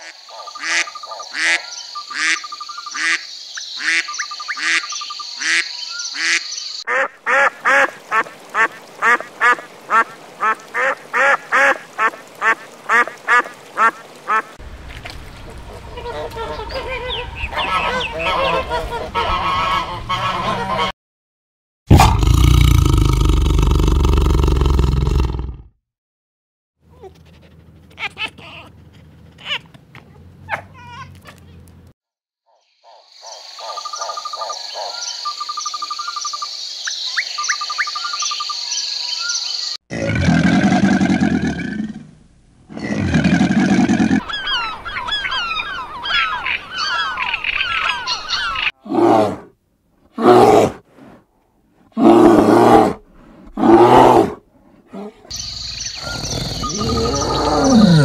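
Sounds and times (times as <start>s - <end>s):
high pulsing animal call with trills: 55.3s - 58.0s
loud low animal calls: 55.3s - 58.0s.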